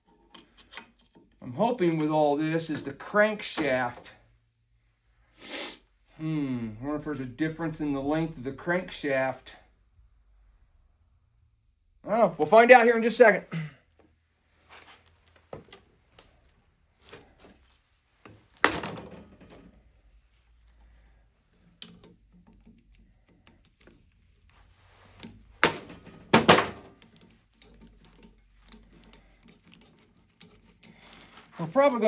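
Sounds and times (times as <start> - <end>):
tools and metal parts clunking: 0.0 - 1.4, 18.6 - 19.8, 25.0 - 31.9.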